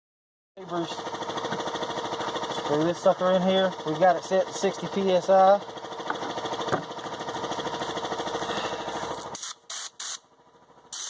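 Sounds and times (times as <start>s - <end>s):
air compressor pulsing: 0.6s - 11.0s
spray gun air hissing: 9.4s - 10.2s.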